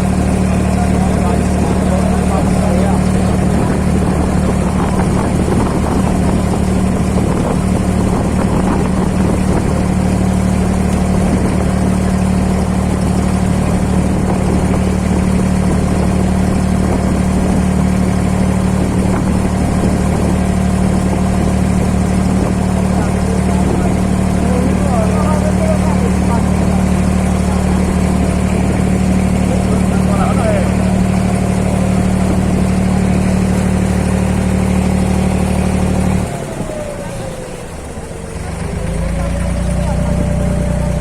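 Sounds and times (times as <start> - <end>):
boat engine humming: 0.0 - 41.0.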